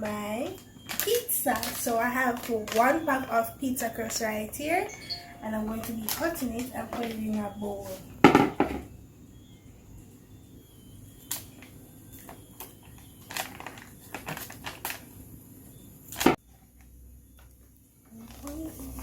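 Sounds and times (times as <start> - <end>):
packet clicks and taps: 4.0 - 7.5.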